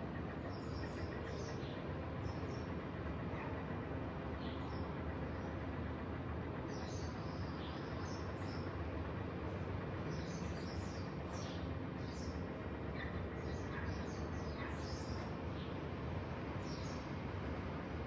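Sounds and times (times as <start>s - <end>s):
small birds chirping: 0.3s - 3.6s, 6.4s - 9.3s, 9.9s - 17.6s.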